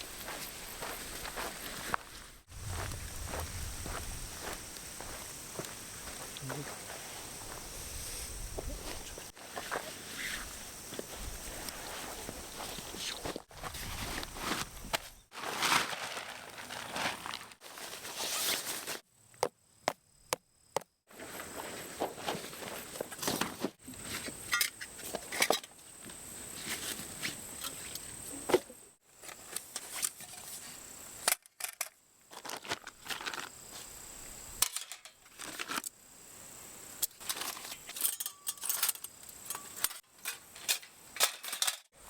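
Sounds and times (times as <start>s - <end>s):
footsteps: 0.0s - 15.9s
rustling: 8.0s - 19.0s.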